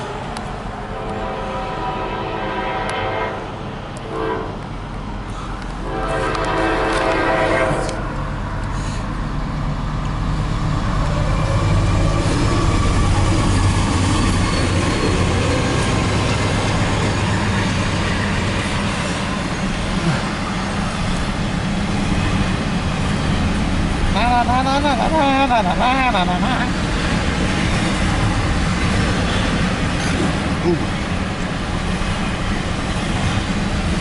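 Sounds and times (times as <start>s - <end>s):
diesel locomotive drone: 0.0s - 34.0s
train horn blast: 0.8s - 4.6s, 5.8s - 8.2s
train wheels on rails: 2.6s - 34.0s.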